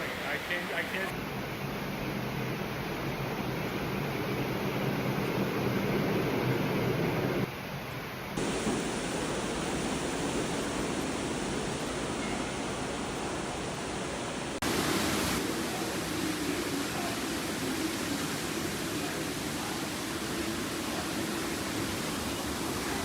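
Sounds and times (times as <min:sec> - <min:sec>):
floodwater rushing: 0:08.4 - 0:23.0.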